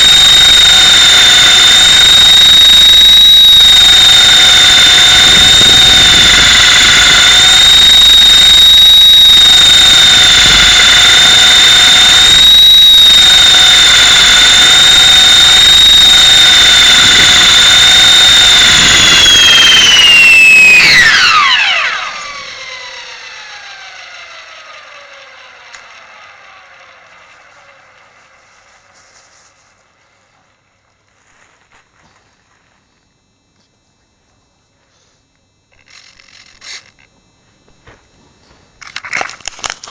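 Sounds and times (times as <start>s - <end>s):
rotor winding down: 0.0s - 29.1s, 35.7s - 37.1s
rc helicopter motor whining: 0.0s - 30.2s, 35.7s - 37.4s.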